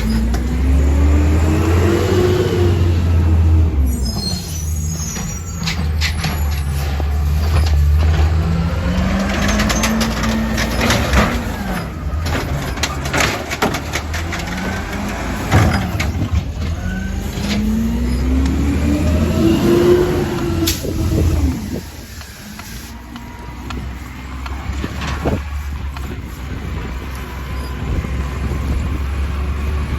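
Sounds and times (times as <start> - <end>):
truck engine revving: 0.0 - 29.9
clanks and knocks: 5.2 - 17.8.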